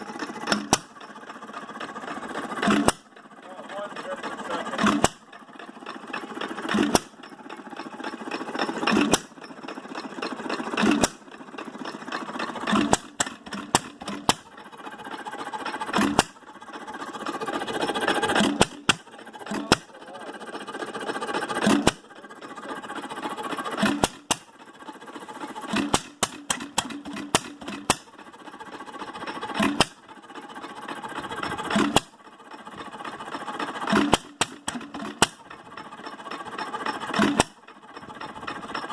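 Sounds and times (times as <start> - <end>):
hit-and-miss engine firing bangs: 18.3 - 20.0, 23.8 - 24.5.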